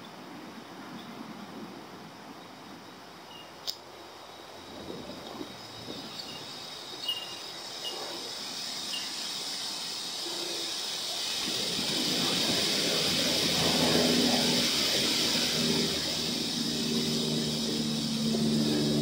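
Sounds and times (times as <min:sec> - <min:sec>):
steady hiss: 0:02.6 - 0:19.0
sharp click: 0:03.6 - 0:03.8.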